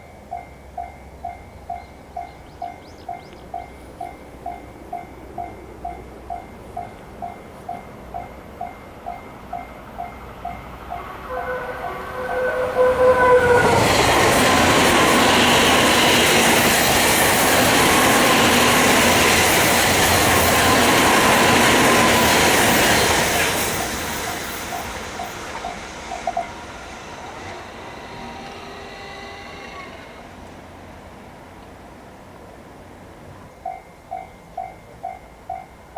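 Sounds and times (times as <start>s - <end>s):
train passing loudly: 0.0s - 35.9s
two-tone train horn: 10.8s - 16.3s, 27.3s - 30.4s.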